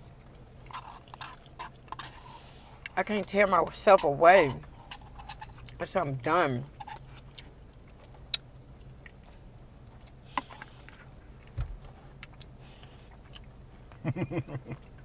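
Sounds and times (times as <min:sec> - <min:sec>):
soft chewing: 0:00.0 - 0:05.8, 0:06.7 - 0:14.1
steady low hum: 0:00.0 - 0:15.0
dull thump: 0:11.6 - 0:11.9.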